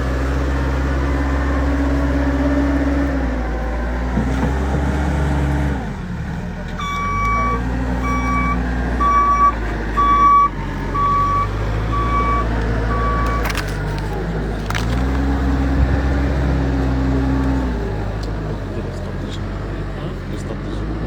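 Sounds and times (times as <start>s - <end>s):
vehicle engine running: 0.0s - 21.0s
reversing alarm beeping: 6.8s - 13.5s.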